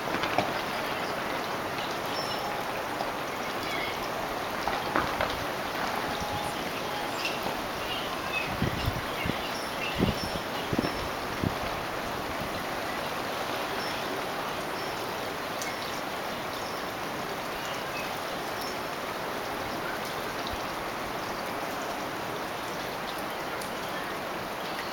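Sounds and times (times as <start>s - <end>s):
wind storm rushing: 0.0s - 13.5s.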